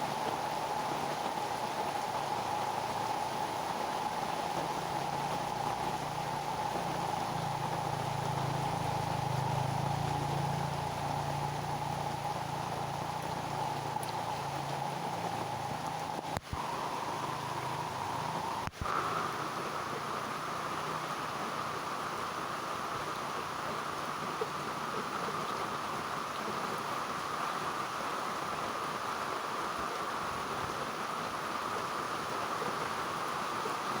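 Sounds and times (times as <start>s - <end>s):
heavy rain on leaves: 0.0s - 34.0s
low steady hum: 1.6s - 27.5s.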